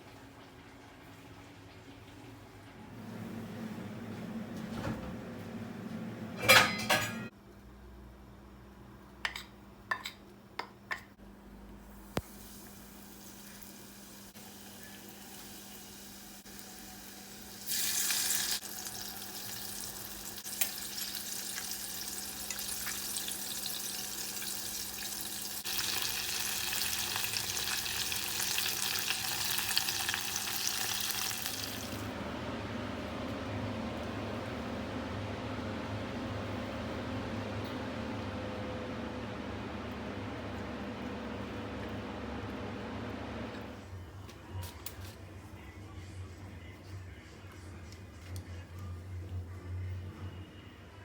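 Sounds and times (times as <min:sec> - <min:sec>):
food sizzling in hot oil: 0:12.2 - 0:32.1.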